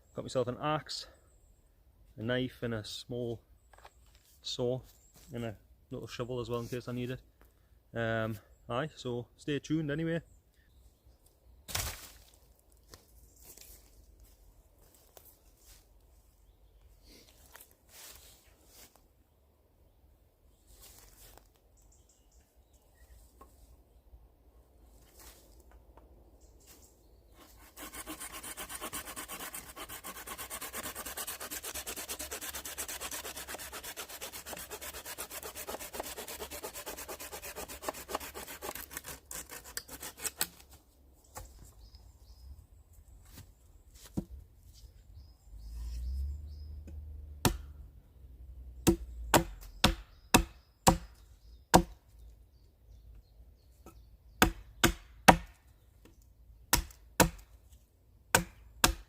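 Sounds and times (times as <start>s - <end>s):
hand saw rasping through wood: 27.4s - 40.5s
sharp chopping knocks: 47.4s - 47.7s, 48.8s - 51.1s, 54.4s - 55.6s, 56.7s - 57.4s, 58.4s - 59.0s.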